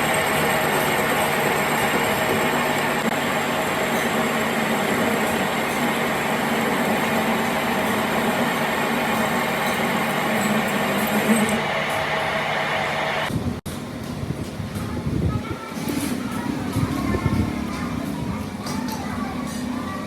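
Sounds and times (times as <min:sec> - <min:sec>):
machine humming: 0:00.0 - 0:13.6.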